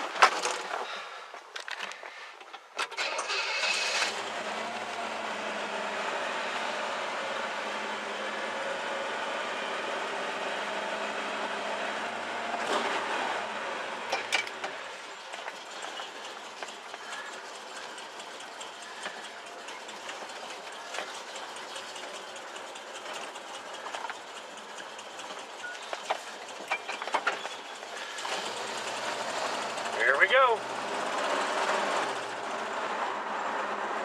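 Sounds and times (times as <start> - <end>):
car engine hum: 0.0 - 34.0
sharp clicks and ticks: 14.4 - 28.4.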